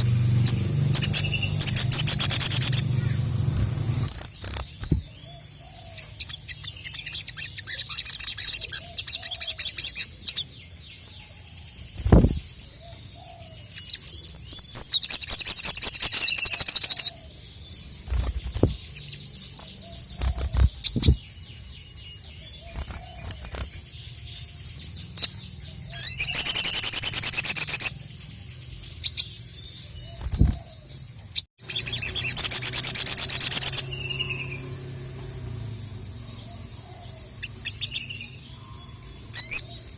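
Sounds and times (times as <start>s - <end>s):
bird rattling trills: 0.0s - 5.2s, 19.6s - 21.2s
bird sharp chips: 0.0s - 5.2s, 12.0s - 12.5s, 18.0s - 21.3s, 22.6s - 23.9s, 30.1s - 30.7s.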